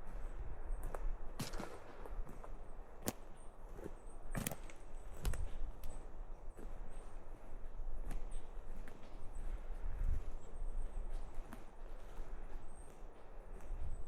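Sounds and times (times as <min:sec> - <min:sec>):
twigs cracking underfoot: 0:00.8 - 0:06.0.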